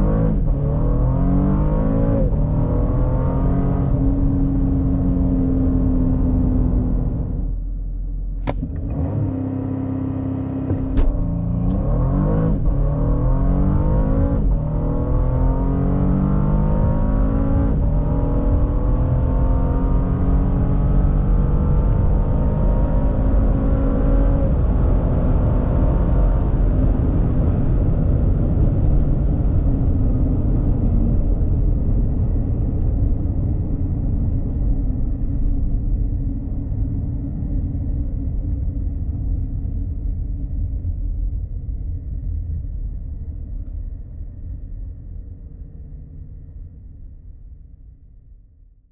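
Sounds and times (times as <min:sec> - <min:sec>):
car engine accelerating hard: 0:00.0 - 0:07.6, 0:08.4 - 0:34.7.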